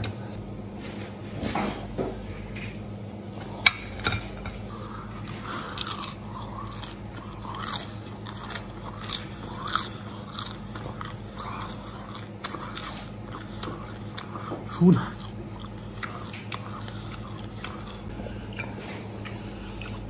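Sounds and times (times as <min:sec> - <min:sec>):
man crunching crispy food: 0:05.1 - 0:20.0.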